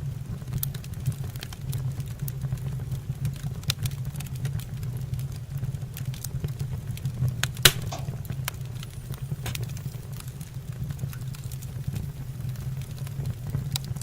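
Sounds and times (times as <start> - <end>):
wood fire crackling: 0.0 - 14.0
steady low hum: 7.6 - 14.0
sharp pops: 7.7 - 9.9.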